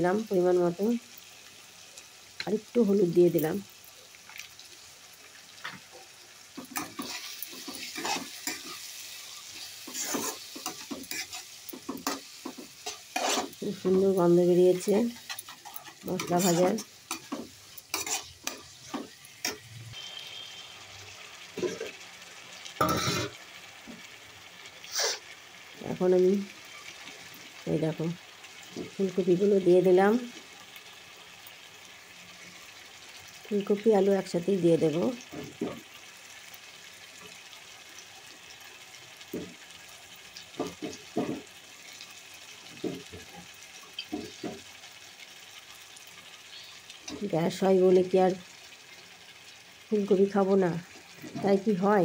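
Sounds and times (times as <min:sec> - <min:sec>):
masala sizzling in oil: 0:00.0 - 0:52.0
spatula scraping pan: 0:06.6 - 0:13.6, 0:15.1 - 0:20.7, 0:21.6 - 0:22.0, 0:22.8 - 0:23.4.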